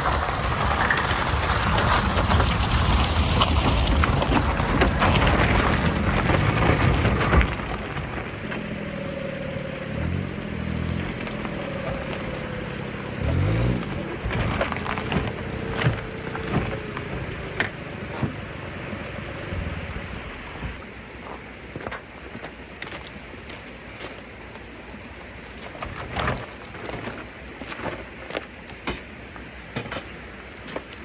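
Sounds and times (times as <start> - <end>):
truck engine running: 0.0 - 21.0
truck road noise: 0.0 - 22.0.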